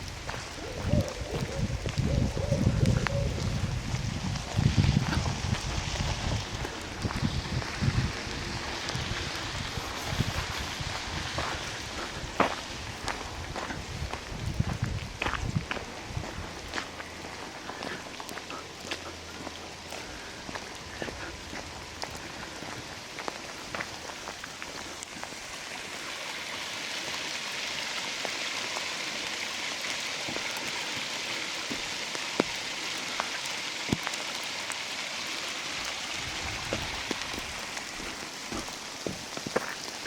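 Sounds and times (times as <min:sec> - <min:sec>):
rain falling in forest: 0:00.0 - 0:40.0.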